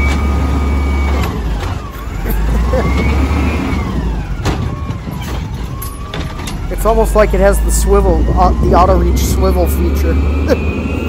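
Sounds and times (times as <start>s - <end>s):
hydraulic arm whine: 0.0s - 11.0s
truck engine revving: 0.0s - 11.0s.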